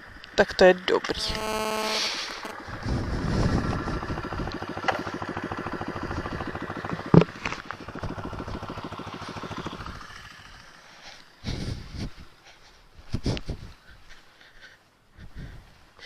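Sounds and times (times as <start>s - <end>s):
small motorcycle engine running: 0.0s - 12.3s.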